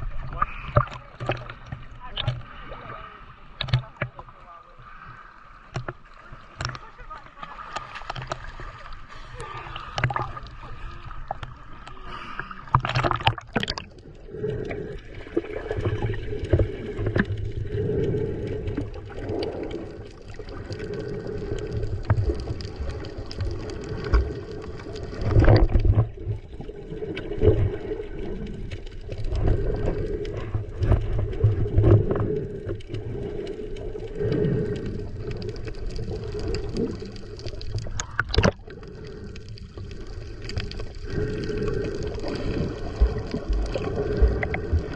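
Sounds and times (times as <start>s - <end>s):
water sloshing and gurgling: 0.0s - 44.9s
sharp knocks and splashes: 12.7s - 13.9s, 37.7s - 38.6s.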